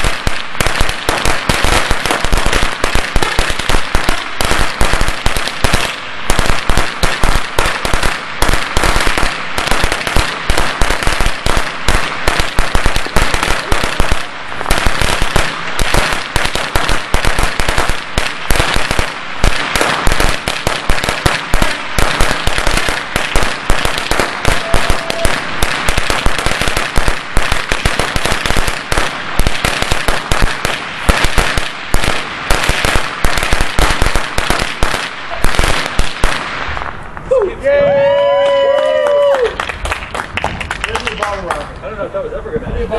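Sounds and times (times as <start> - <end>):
firecracker string exploding: 0.0 - 37.4.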